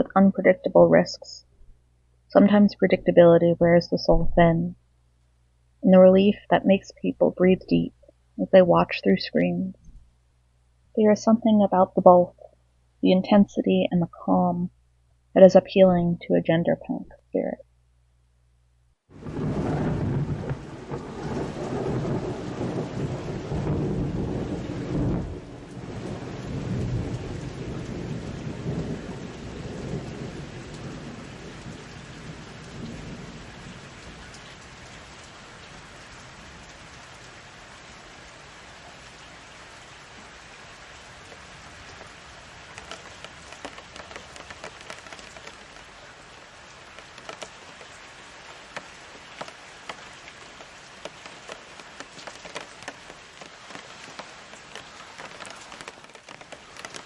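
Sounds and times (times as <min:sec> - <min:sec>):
raindrops tapping: 0:00.0 - 0:18.0, 0:19.2 - 0:37.3, 0:41.0 - 0:57.0
steady rain: 0:00.0 - 0:57.0
rolling thunder: 0:19.2 - 0:34.3.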